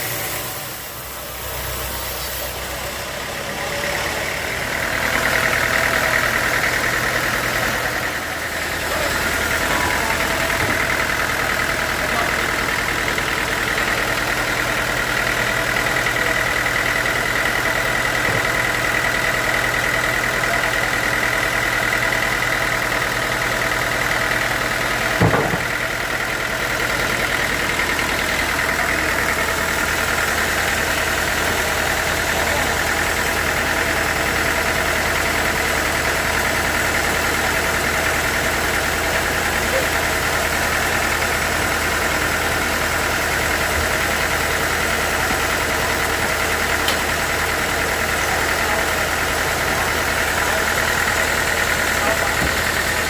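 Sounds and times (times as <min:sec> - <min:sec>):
low engine hum: 0:00.0 - 0:53.0
sawmill machinery whining: 0:00.0 - 0:53.0.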